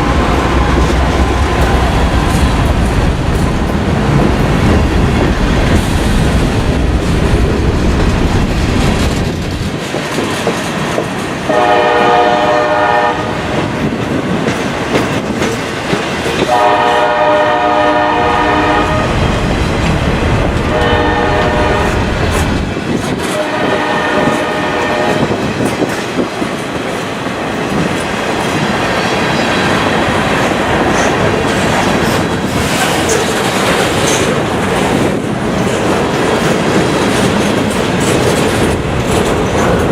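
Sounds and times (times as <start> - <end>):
passing train rumble and wheel clatter: 0.0 - 39.9
locomotive horn blasts: 11.5 - 13.4, 16.5 - 19.2, 20.7 - 22.1, 23.3 - 25.4.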